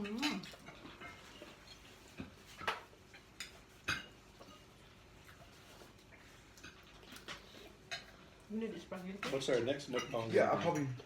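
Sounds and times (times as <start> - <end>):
cutlery clinking on plates: 0.0 - 4.7, 6.6 - 8.2, 9.2 - 11.0
faint room noise: 0.0 - 11.0.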